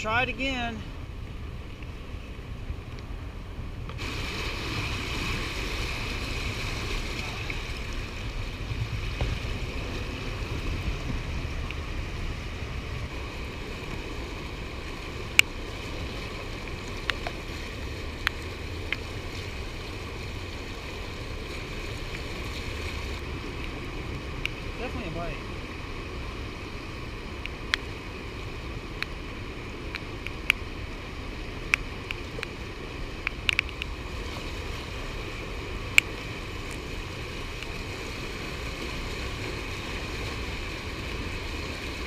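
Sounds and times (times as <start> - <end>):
rushing river water: 0.0 - 42.0
wind buffeting microphone: 0.9 - 24.9.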